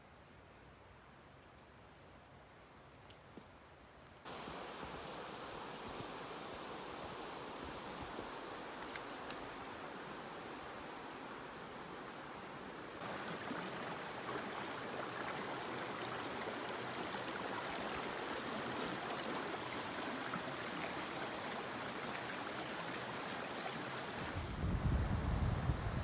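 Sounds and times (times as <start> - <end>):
mountain stream flowing: 4.0 - 24.4.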